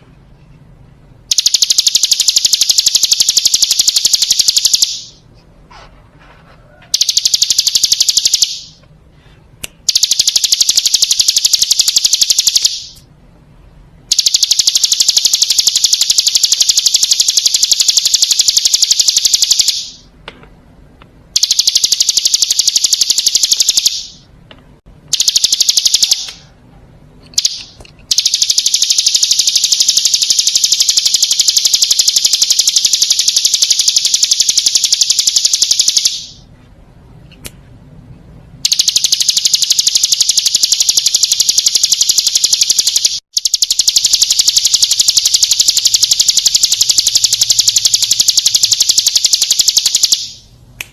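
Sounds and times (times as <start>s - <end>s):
bird high-pitched rattling trill: 1.3s - 5.2s, 7.0s - 8.7s, 9.9s - 13.0s, 14.1s - 20.0s, 21.4s - 24.2s, 25.1s - 26.4s, 27.3s - 36.4s, 38.6s - 50.4s.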